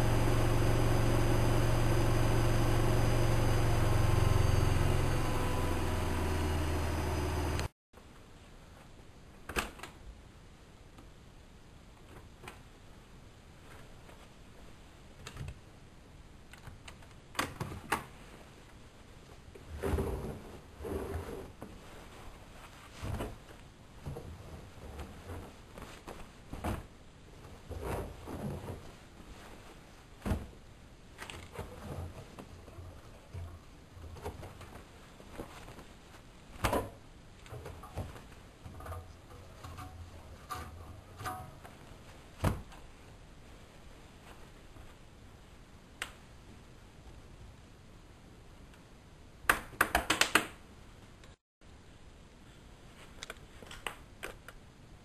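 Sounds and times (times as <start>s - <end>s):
washing machine running: 0.0s - 7.7s.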